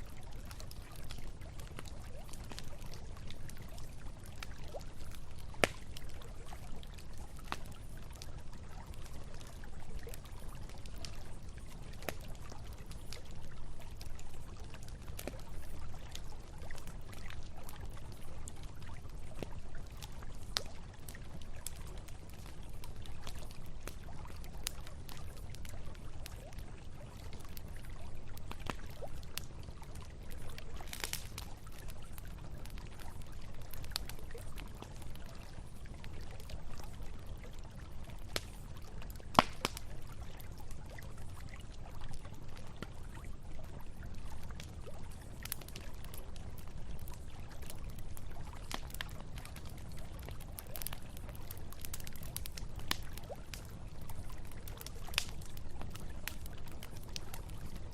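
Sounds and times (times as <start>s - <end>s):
campfire crackling and popping: 0.0s - 57.9s.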